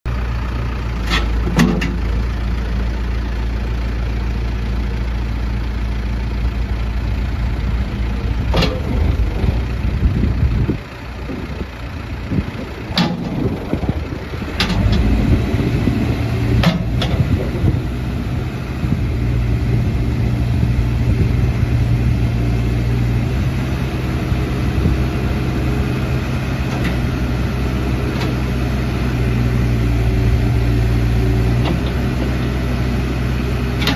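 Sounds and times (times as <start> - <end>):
diesel engine low hum: 0.1 - 33.9.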